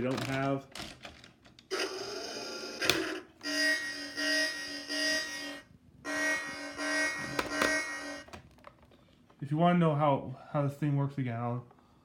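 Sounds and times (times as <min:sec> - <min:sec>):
buzzy toy horn tone pulses: 0:01.7 - 0:08.3.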